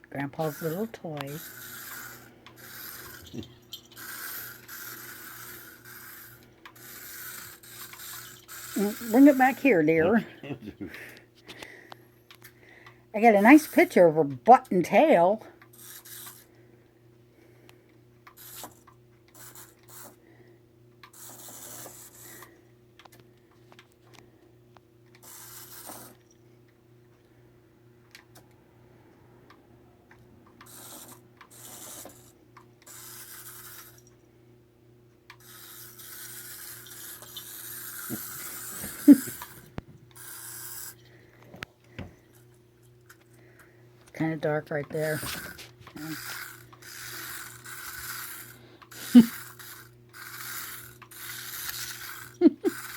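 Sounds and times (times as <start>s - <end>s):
steady low hum: 0.0s - 52.9s
toy car rolling across floor: 0.3s - 10.0s, 15.7s - 16.5s, 18.2s - 20.2s, 21.0s - 23.1s, 25.1s - 26.4s, 30.6s - 34.2s, 35.3s - 41.1s, 44.9s - 52.9s.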